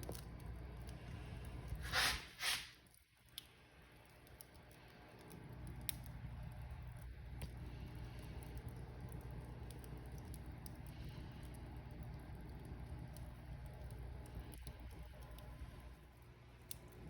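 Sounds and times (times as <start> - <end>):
wood fire crackling: 0.0 - 17.0
fire hissing: 1.0 - 2.9.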